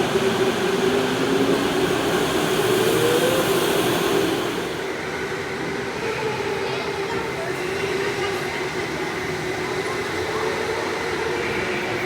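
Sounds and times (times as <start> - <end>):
motor whine rising in pitch: 0.0 - 4.9
electric go-kart motor hum: 0.0 - 5.3.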